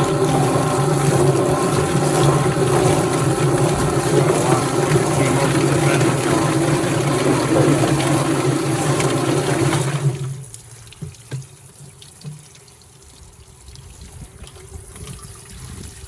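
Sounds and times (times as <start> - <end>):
motor hum: 0.0 - 10.3
water splashing: 0.0 - 16.0
water trickling and dripping: 0.0 - 16.0.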